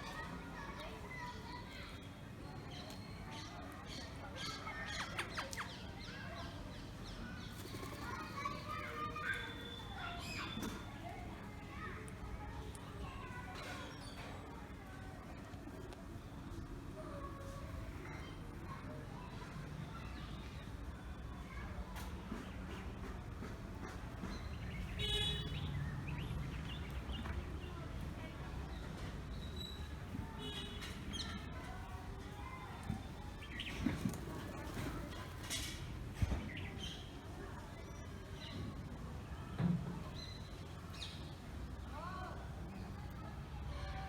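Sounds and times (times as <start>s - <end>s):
birds chirping: 23.8s - 39.0s.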